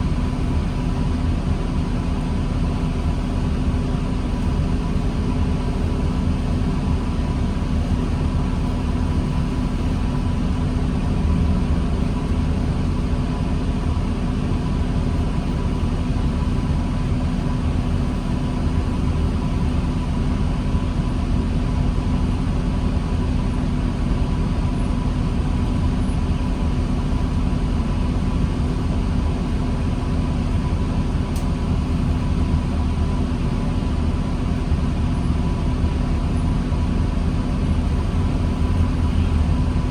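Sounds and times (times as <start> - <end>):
diesel bus engine droning: 0.0 - 39.9.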